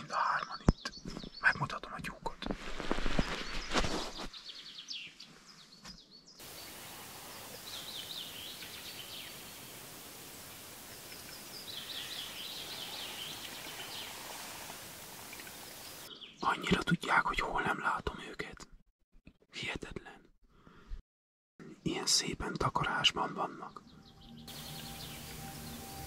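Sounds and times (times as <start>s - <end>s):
steady outdoor hiss: 6.4s - 16.4s, 24.0s - 26.0s.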